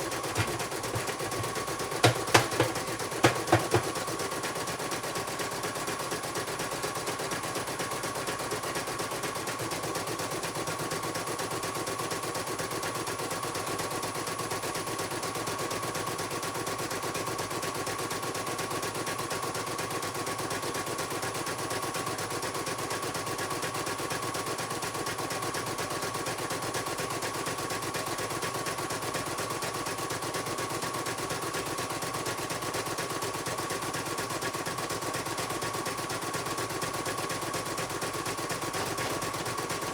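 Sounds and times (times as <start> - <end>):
embroidery machine stitching: 37.2 - 39.9.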